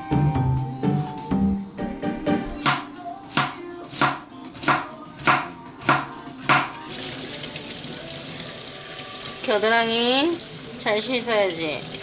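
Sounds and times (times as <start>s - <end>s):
knife chopping on cutting board: 2.6s - 6.8s.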